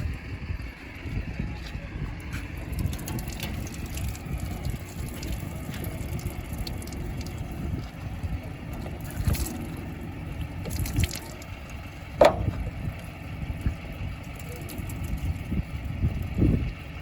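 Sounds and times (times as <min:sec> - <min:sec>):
diesel engine rumbling: 0:00.0 - 0:17.0
loud metal clank: 0:12.2 - 0:12.8.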